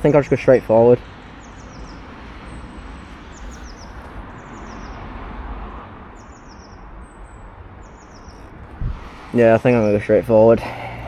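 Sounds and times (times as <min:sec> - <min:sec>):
small bird chirping: 0:03.2 - 0:05.0, 0:06.2 - 0:08.6
steady low rumble: 0:08.4 - 0:11.0.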